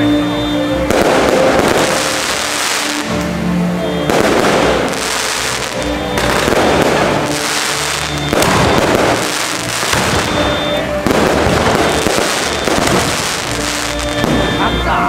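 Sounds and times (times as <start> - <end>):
fireworks crackling: 0.0 - 15.0
fireworks shells bursting: 0.8 - 15.0.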